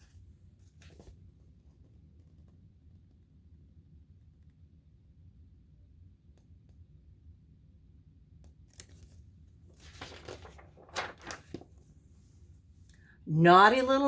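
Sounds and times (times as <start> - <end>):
book pages turning: 8.8 - 12.0.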